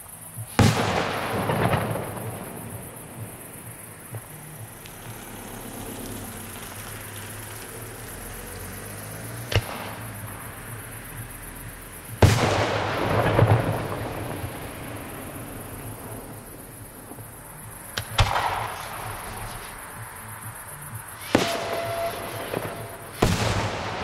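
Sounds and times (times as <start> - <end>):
firework burst with rumbling tail: 0.6 - 4.8, 12.2 - 17.4, 18.0 - 19.7, 21.2 - 24.0
firework sharp crack: 0.6 - 7.6, 9.5 - 10.6, 12.2 - 17.2, 17.9 - 19.9, 21.1 - 24.0.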